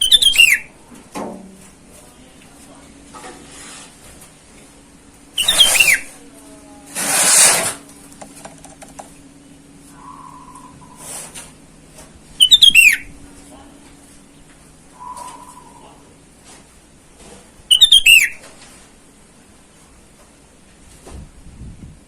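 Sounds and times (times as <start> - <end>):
bird whistles: 0.0 - 0.7, 5.4 - 6.1, 9.9 - 11.1, 12.4 - 13.1, 14.9 - 16.0, 17.7 - 18.4
harsh bird calls: 0.0 - 0.7, 5.4 - 6.1, 9.9 - 11.2, 12.4 - 13.1, 14.9 - 16.0, 17.7 - 18.4
faint low hum: 0.0 - 22.0.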